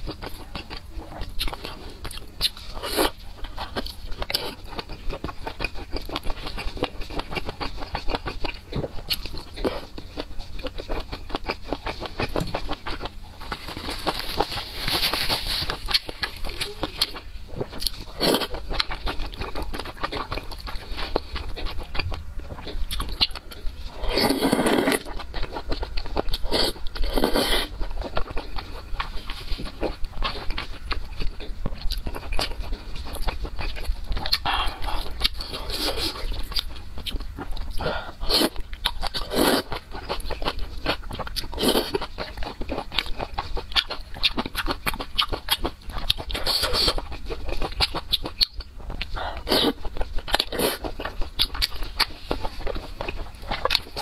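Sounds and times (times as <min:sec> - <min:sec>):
wet chewing: 0:00.0 - 0:54.0.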